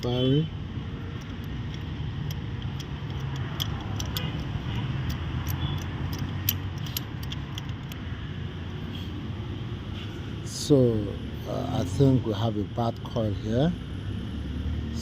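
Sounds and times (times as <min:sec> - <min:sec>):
metallic clicks of hand tools: 0:01.0 - 0:08.1.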